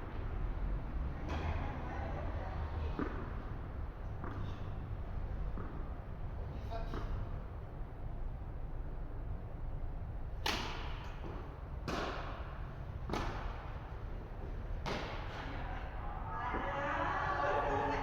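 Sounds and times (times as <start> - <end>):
tennis ball hit by racket: 2.9 - 3.5, 4.1 - 4.8, 5.4 - 5.9, 10.3 - 14.0, 14.7 - 15.7.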